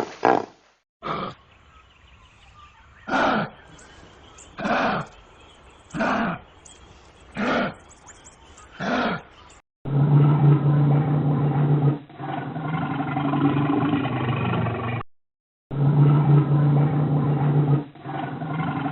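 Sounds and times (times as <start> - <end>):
low growling roar: 9.9 - 15.0, 15.7 - 18.9.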